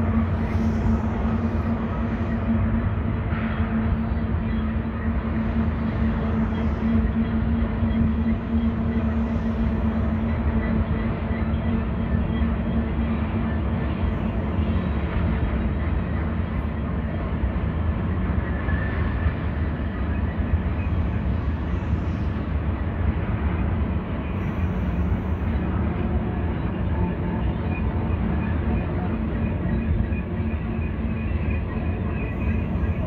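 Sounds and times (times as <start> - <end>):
freight train wheels rumbling on rail: 0.0 - 33.0.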